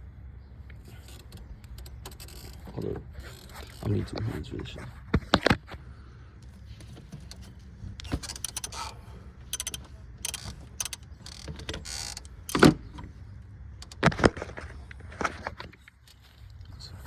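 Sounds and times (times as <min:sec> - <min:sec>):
clicks and rattles of tools: 0:06.4 - 0:13.1, 0:13.8 - 0:16.6.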